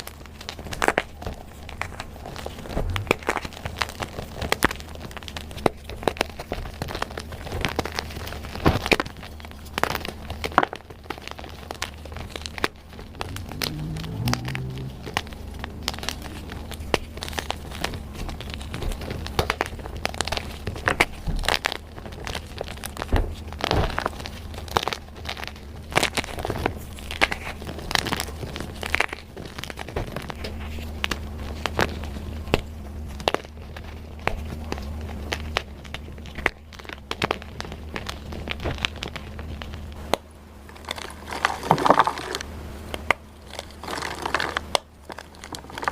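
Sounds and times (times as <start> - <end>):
low steady hum: 0.0 - 45.9
chalk being crushed: 40.6 - 42.5, 43.4 - 45.9.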